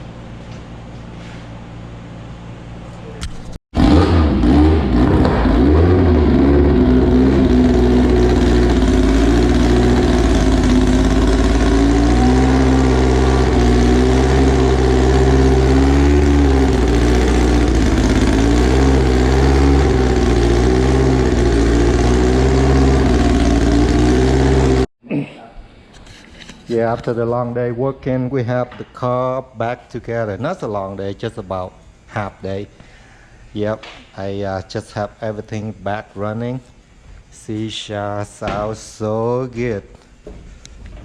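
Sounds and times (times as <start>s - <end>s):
car engine idling: 3.8s - 24.9s.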